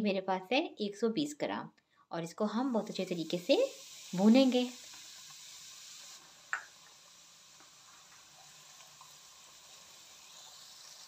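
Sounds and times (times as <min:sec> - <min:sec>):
faint frying sizzle: 0:02.5 - 0:11.0.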